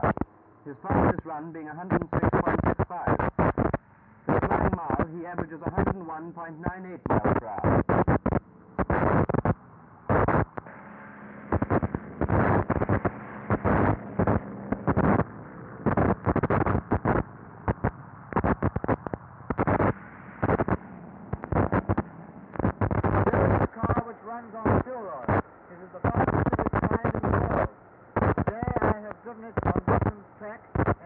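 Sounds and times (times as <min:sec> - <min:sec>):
faint steady hum: 0:00.0 - 0:31.0
harsh bursts of noise: 0:07.1 - 0:24.0.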